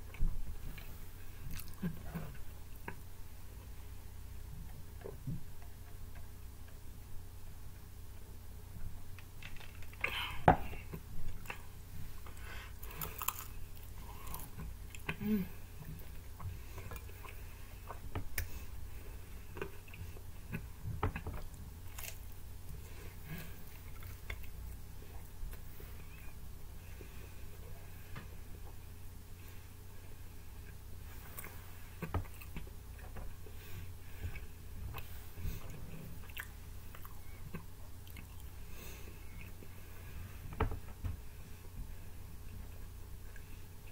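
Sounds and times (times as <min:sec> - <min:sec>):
low steady hum: 0:00.0 - 0:43.9
person chewing and biting food: 0:00.8 - 0:03.0, 0:12.3 - 0:15.2, 0:19.4 - 0:22.8.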